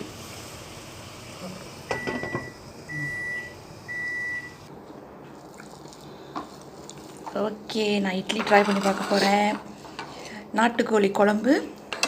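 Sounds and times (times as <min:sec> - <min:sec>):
microwave beeps: 0:01.9 - 0:04.6.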